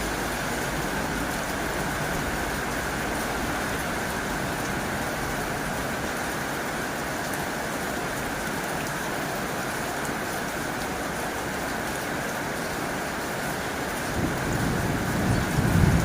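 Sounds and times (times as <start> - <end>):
heavy rain on a tin roof: 0.0 - 16.0.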